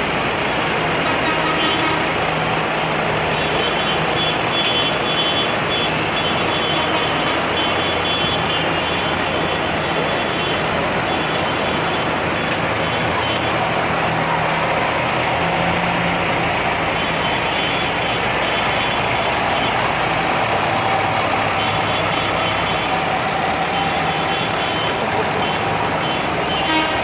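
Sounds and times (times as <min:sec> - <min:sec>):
tractor engines passing: 0:00.0 - 0:27.0.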